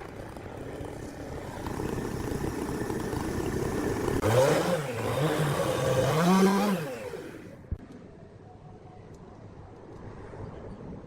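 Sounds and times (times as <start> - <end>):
small engine revving: 0.0 - 7.6.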